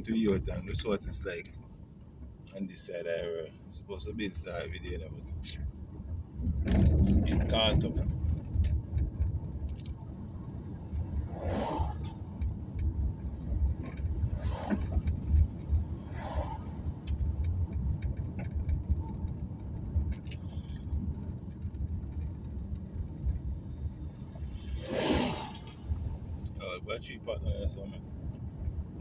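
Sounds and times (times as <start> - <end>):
car engine and tyre rumble: 0.0 - 29.0
short swishes: 24.7 - 26.0.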